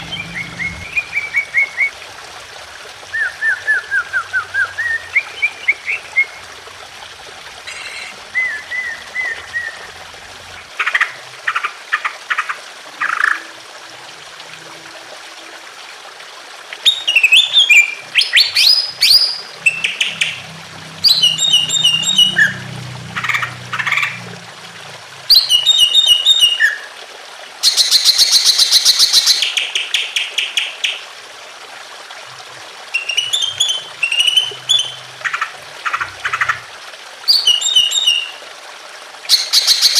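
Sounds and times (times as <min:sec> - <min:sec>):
water trickling: 0:00.0 - 0:39.9
bird whistled chirps and trills: 0:03.2 - 0:06.4, 0:07.7 - 0:09.8, 0:16.9 - 0:20.1, 0:21.0 - 0:22.6, 0:25.3 - 0:26.9, 0:27.6 - 0:29.7, 0:33.0 - 0:35.0, 0:37.3 - 0:38.4, 0:39.3 - 0:39.9.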